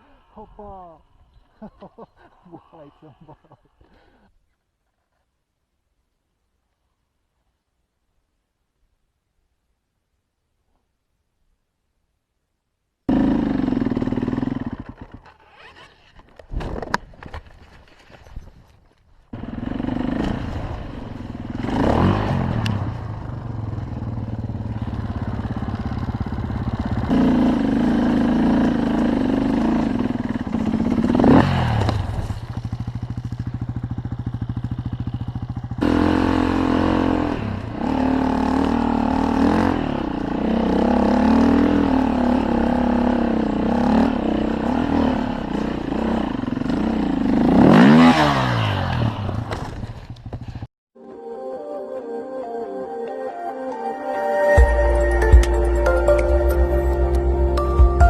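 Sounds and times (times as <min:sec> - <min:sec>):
motorcycle engines revving: 0:13.1 - 0:15.7, 0:19.3 - 0:50.7.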